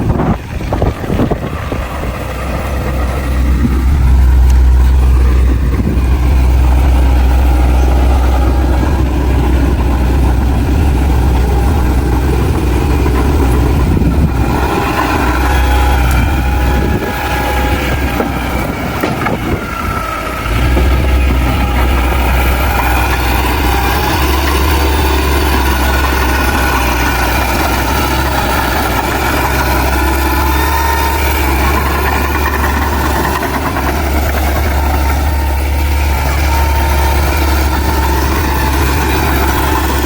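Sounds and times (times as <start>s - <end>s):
diesel engine rumble: 0.0s - 40.0s.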